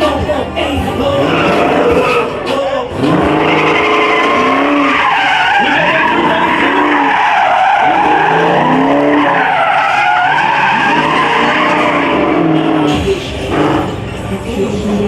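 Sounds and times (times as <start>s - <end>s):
car engine revving: 0.0s - 15.0s
car tyres squealing: 0.0s - 15.0s.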